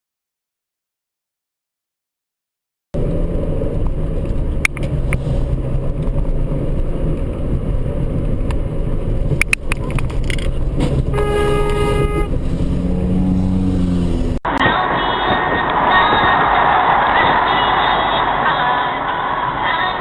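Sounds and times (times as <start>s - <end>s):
car road and engine rumble: 3.0s - 20.0s
sharp clicks: 9.4s - 10.6s
car horn honking: 11.0s - 16.4s.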